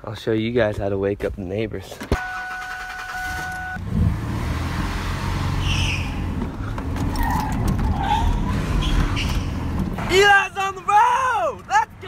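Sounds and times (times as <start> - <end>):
car engine starting and revving: 2.2 - 10.0
short high squeal: 5.6 - 6.2.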